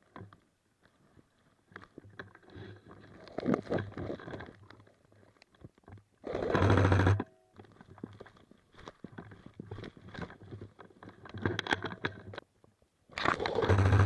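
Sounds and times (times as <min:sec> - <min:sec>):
airsoft gun full-auto burst: 0:13.4 - 0:14.0.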